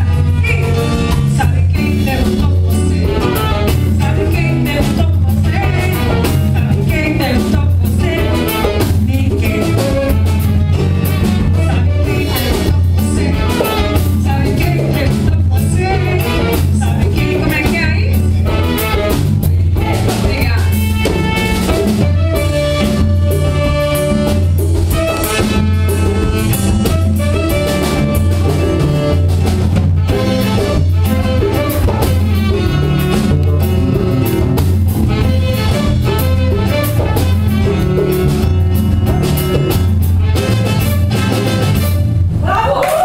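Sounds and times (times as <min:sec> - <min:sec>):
live band instrumental music: 0:00.0 - 0:43.0.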